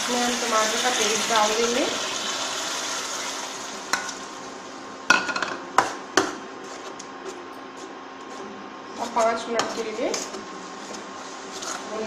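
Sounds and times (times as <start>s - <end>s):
paste sizzling in hot oil: 0.0s - 4.0s.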